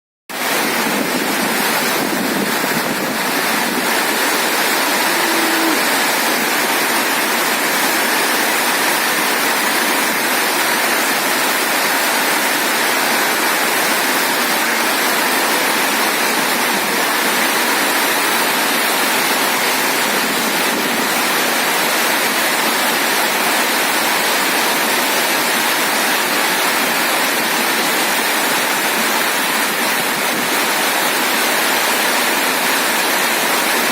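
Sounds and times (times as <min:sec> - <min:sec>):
heavy rain pouring: 0:00.3 - 0:33.9.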